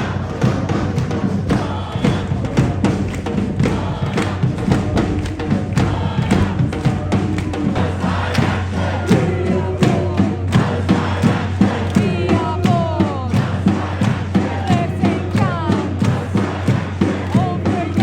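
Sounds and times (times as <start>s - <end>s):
drums and percussion beat: 0.0s - 18.0s.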